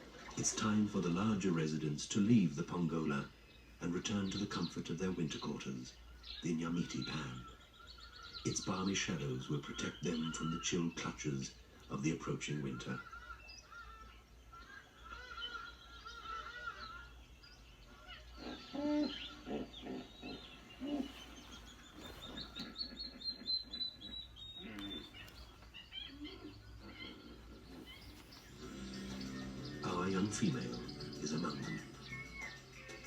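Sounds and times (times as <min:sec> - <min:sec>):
wetland birds chirping: 0:00.0 - 0:33.0
short low bird calls: 0:05.5 - 0:33.0
bird notes climbing in pitch: 0:18.5 - 0:33.0.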